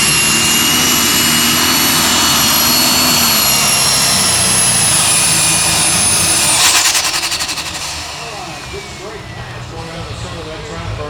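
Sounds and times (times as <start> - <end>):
turbocharger whistle: 0.0 - 10.9
tractor engine rumbling: 0.0 - 11.0.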